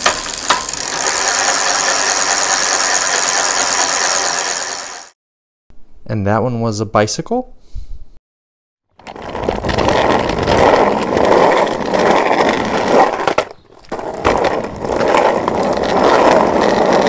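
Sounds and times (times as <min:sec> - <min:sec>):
skateboard wheels rolling on pavement: 0:00.0 - 0:05.1, 0:09.0 - 0:17.0.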